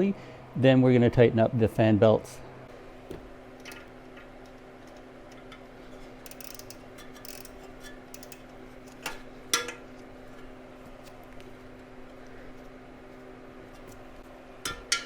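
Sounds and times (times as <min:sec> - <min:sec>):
steady low hum: 0:00.0 - 0:15.0
ratcheting wrench clicking: 0:06.2 - 0:08.4.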